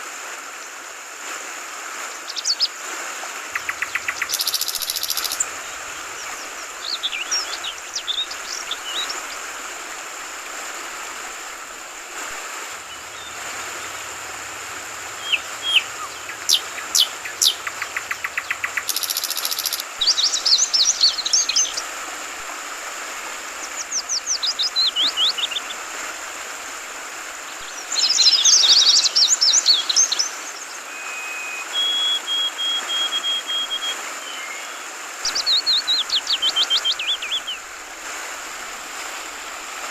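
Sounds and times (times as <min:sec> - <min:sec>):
flowing water hiss: 0:00.0 - 0:39.9
bird chirping: 0:03.6 - 0:09.4, 0:15.1 - 0:21.8.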